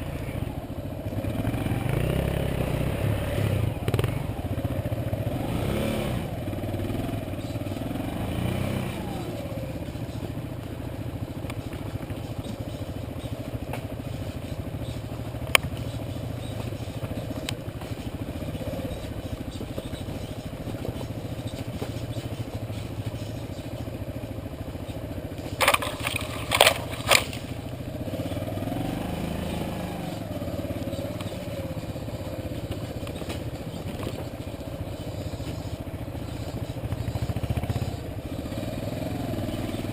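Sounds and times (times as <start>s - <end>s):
motorcycle engine running: 0.0s - 39.9s
sharp click: 25.6s - 27.4s.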